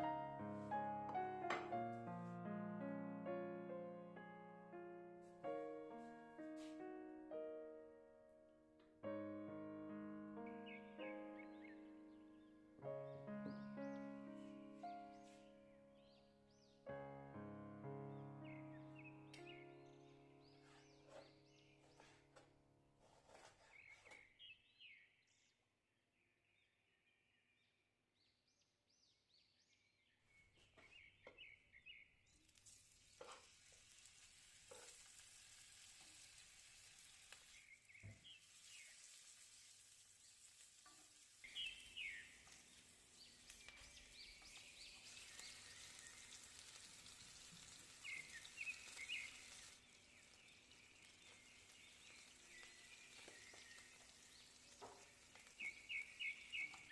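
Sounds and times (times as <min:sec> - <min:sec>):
light knocks: 0:01.1 - 0:02.0
food frying sizzle: 0:20.4 - 0:22.2, 0:32.3 - 0:56.9
birds chirping: 0:41.4 - 0:46.9, 0:47.6 - 0:56.9.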